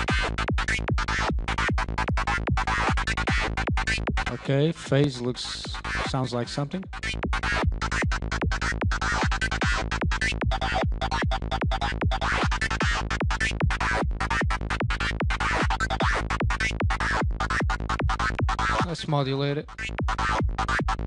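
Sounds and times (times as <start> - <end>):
kick drum: 0.1 - 4.3, 7.0 - 18.7.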